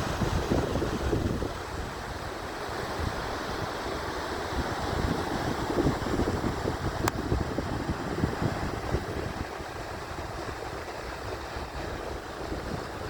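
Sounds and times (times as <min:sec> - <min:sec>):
sea surf rushing on shore: 0:00.0 - 0:13.0
wind buffeting microphone: 0:00.0 - 0:13.0.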